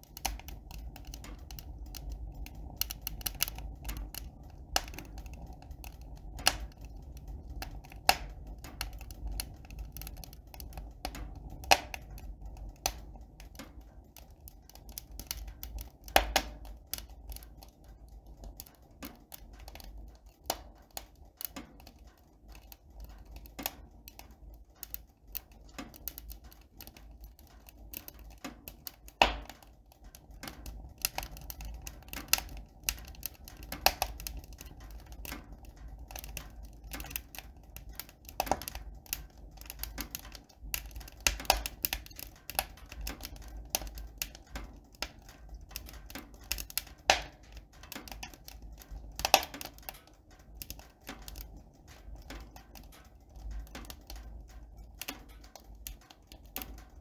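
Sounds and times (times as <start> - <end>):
sharp clicks and taps: 0.1 - 17.8.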